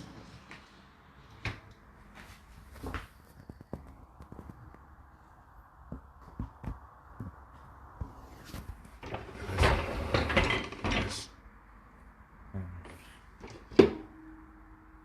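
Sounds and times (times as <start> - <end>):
dishwasher rack rattling: 9.0 - 11.3.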